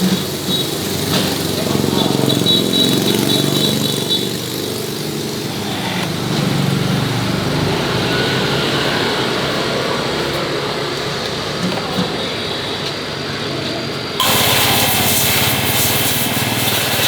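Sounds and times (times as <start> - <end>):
small engine running: 0.0 - 9.0, 14.2 - 17.0.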